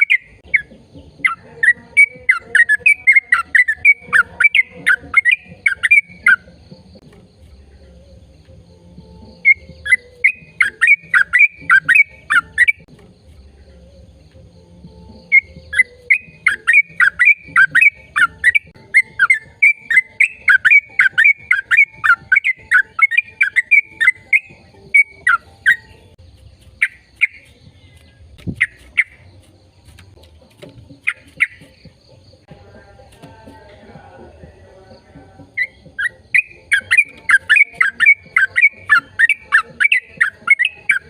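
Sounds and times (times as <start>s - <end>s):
bird chirping: 0.0s - 41.0s.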